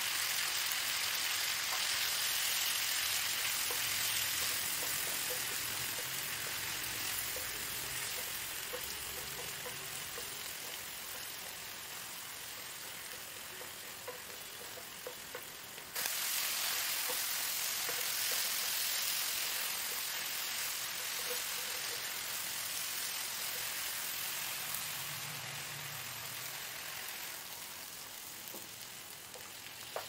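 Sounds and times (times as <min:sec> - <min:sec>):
vegetables sizzling in a pan: 0:00.0 - 0:30.0
wooden spatula tapping pan: 0:03.5 - 0:15.7, 0:17.0 - 0:18.7, 0:29.3 - 0:30.0.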